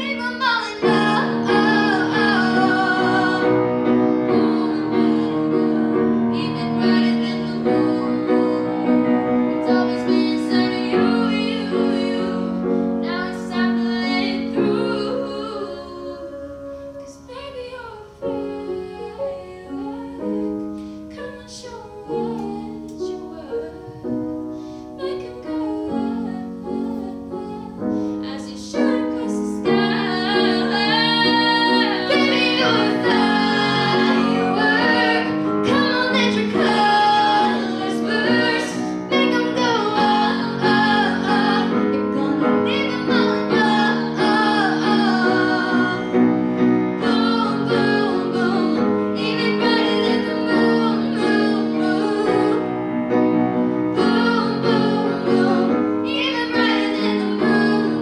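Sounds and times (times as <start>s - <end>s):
woman singing: 0.0s - 24.3s, 25.0s - 52.8s, 53.9s - 58.0s
piano accompaniment: 0.0s - 58.0s.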